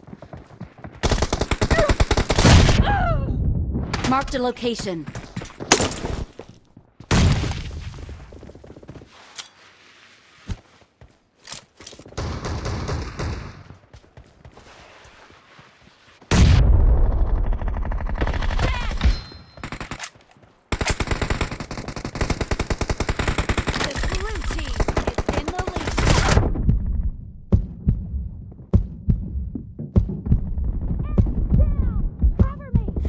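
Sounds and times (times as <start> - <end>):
heavy explosion with low rumble: 2.6 - 4.0, 26.4 - 28.5.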